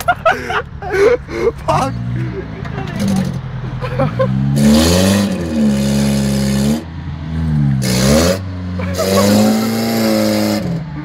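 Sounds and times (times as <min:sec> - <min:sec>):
tyres screeching: 0:00.5 - 0:06.8, 0:07.8 - 0:11.0
car engine revving hard: 0:03.0 - 0:11.0.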